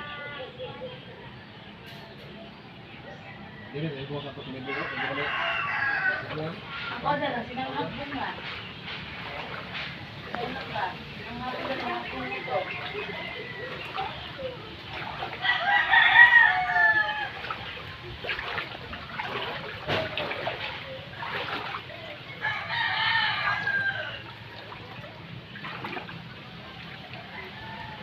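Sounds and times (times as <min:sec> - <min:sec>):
rooster crowing: 0:04.6 - 0:06.4, 0:15.4 - 0:17.5, 0:22.4 - 0:24.3, 0:27.3 - 0:28.0.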